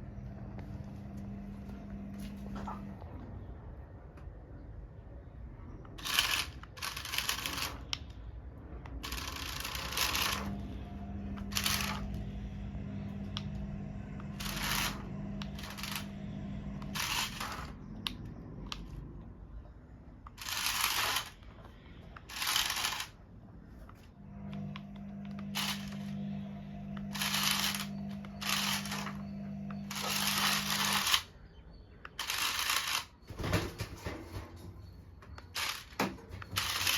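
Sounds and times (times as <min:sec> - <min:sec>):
toy truck electric motor whirring: 0:06.0 - 0:08.1, 0:09.0 - 0:10.7, 0:11.4 - 0:12.2, 0:14.3 - 0:16.1, 0:16.8 - 0:18.9, 0:20.3 - 0:21.4, 0:22.2 - 0:23.2, 0:25.3 - 0:26.1, 0:27.1 - 0:31.3, 0:32.2 - 0:33.2, 0:35.5 - 0:36.9.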